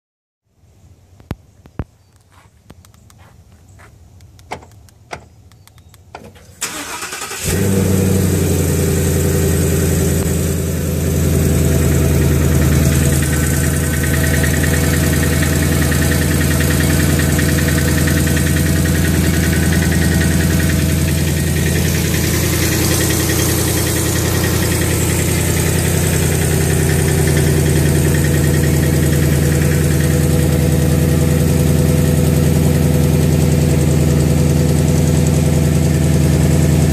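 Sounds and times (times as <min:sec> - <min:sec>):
sharp clicks: 0:01.2 - 0:03.2, 0:04.1 - 0:06.6
car engine cranking and idling: 0:02.3 - 0:36.9.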